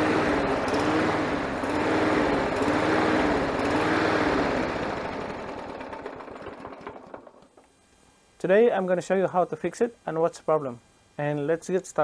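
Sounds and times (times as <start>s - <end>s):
lawnmower engine surging: 0.0s - 7.6s.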